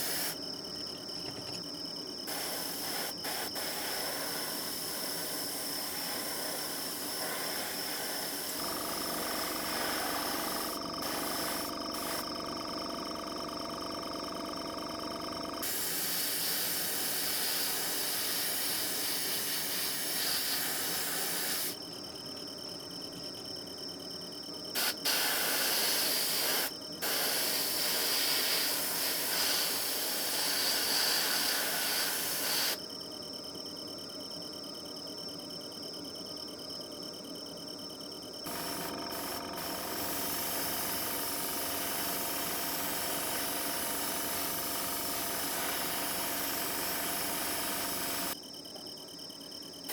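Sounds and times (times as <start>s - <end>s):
airbrush spraying hiss: 0.0s - 0.4s, 2.3s - 8.6s, 9.4s - 12.2s, 15.6s - 21.8s, 24.8s - 32.8s, 39.6s - 48.4s.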